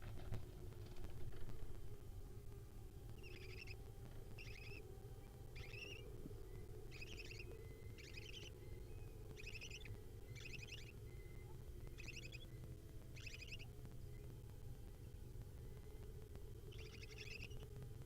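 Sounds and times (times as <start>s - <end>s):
steady low hum: 0.0s - 18.0s
owl nestlings calling: 3.2s - 4.8s, 5.6s - 6.0s, 6.9s - 14.3s, 16.7s - 17.6s.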